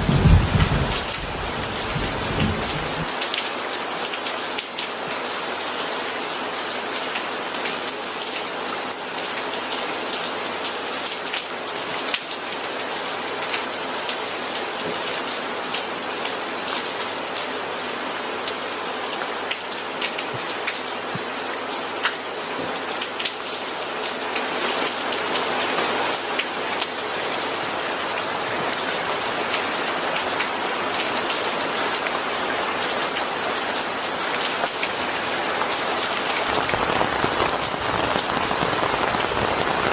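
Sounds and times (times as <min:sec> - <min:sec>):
raindrops ticking close by: 0:00.0 - 0:05.2, 0:33.0 - 0:39.9
steady rain falling: 0:00.0 - 0:39.9.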